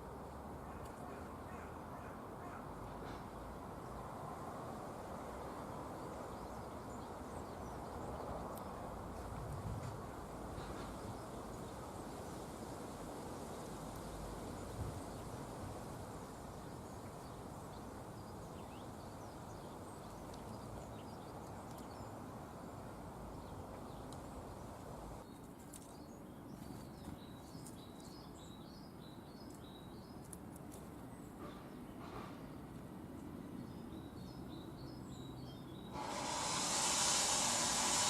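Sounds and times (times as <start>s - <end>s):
small birds chirping: 16.4s - 35.9s.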